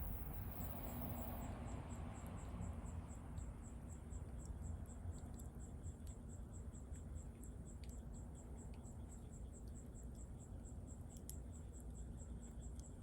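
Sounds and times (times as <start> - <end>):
insect chirping: 0.0 - 1.5.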